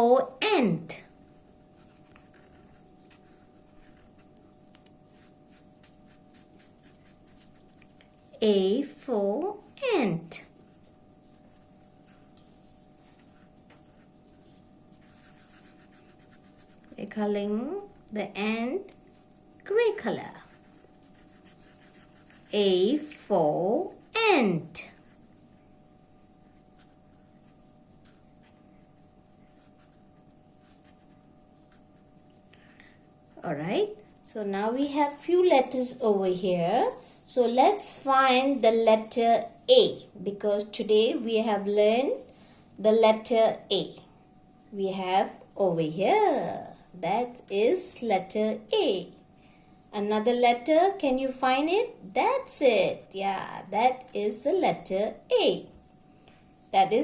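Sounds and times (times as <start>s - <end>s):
low steady hum: 0.0s - 57.0s
colouring tool scratching paper: 1.8s - 4.4s, 5.1s - 8.0s, 13.1s - 17.1s, 20.3s - 23.1s, 29.5s - 32.0s.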